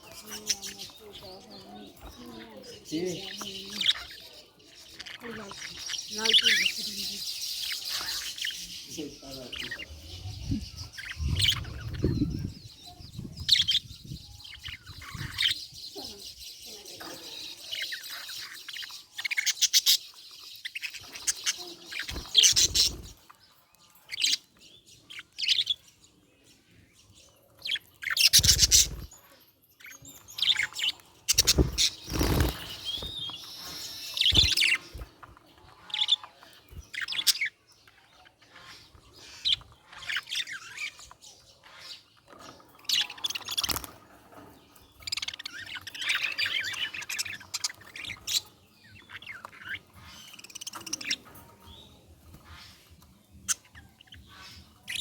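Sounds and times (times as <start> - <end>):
budgie chirping and warbling: 9.5 - 16.5, 17.3 - 23.2, 27.7 - 29.2, 29.8 - 37.6.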